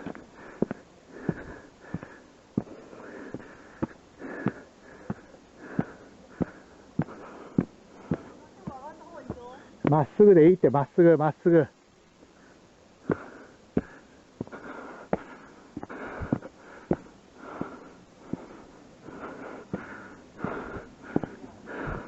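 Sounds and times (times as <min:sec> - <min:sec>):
person breathing hard: 0:00.0 - 0:08.4, 0:12.3 - 0:22.0
footsteps: 0:00.0 - 0:10.2, 0:13.1 - 0:18.6.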